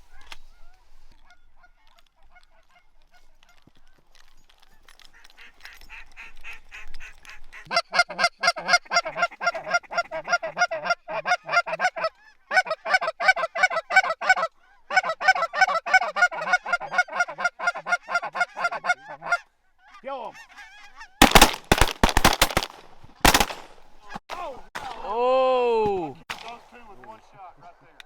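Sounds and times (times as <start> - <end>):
goose honking: 5.2 - 21.5.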